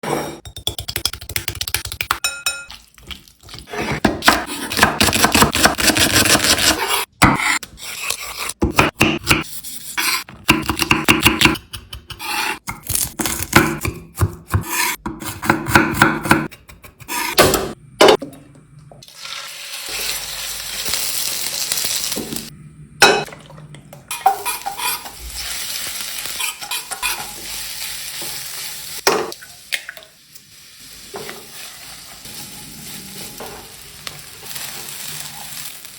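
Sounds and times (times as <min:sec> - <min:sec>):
food sizzling in a pan: 0:19.1 - 0:22.5, 0:24.1 - 0:35.9.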